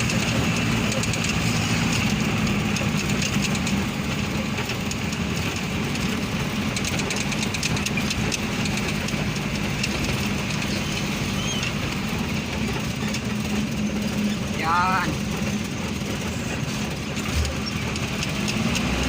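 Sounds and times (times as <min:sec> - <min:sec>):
light rattling clicks: 0:00.0 - 0:18.9
road noise: 0:00.0 - 0:19.0
vehicle engine running: 0:00.0 - 0:19.0.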